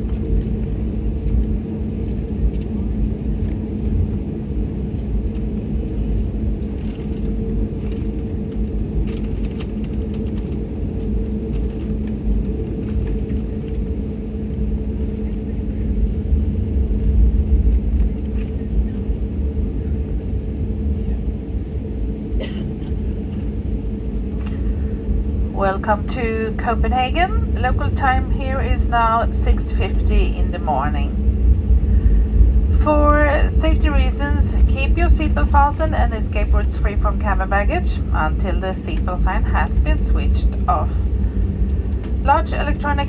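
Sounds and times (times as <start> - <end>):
airplane cabin rumble: 0.0 - 43.0.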